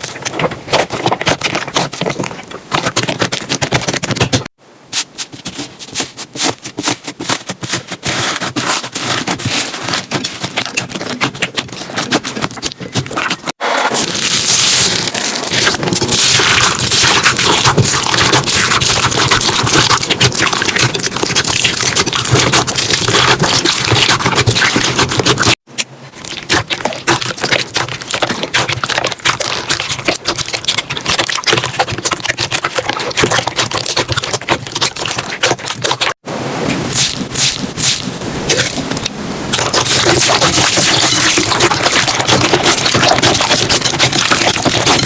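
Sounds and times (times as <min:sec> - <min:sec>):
slime crackling and popping: 0:09.0 - 0:25.6, 0:39.5 - 0:45.0.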